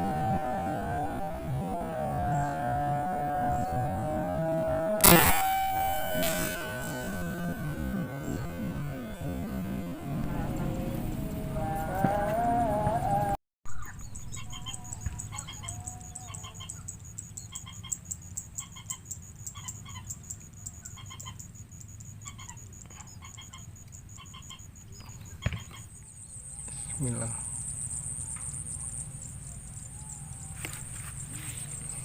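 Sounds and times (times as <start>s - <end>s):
high insect drone: 0.0s - 32.0s
sharp click: 5.0s - 7.4s
bird clucking calls: 13.7s - 16.9s, 22.2s - 26.0s.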